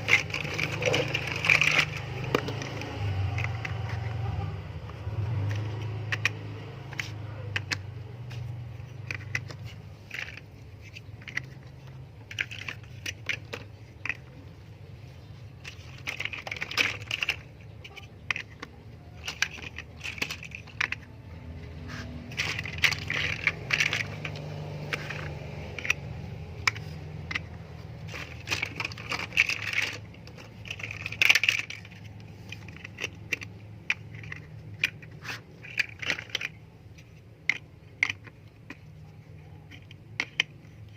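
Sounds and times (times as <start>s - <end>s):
plastic pieces clicking: 0.0s - 40.9s.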